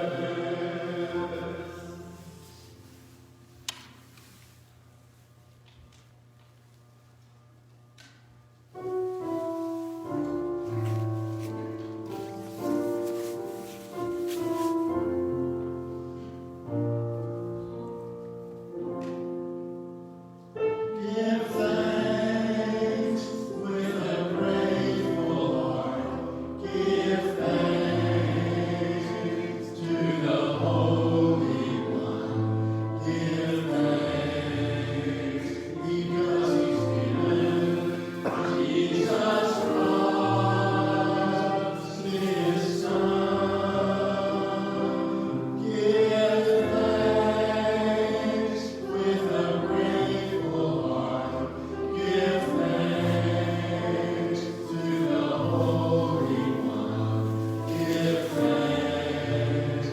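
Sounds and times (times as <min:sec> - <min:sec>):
voices singing a hymn: 0:00.0 - 0:03.1, 0:08.8 - 0:18.3, 0:20.6 - 0:59.9.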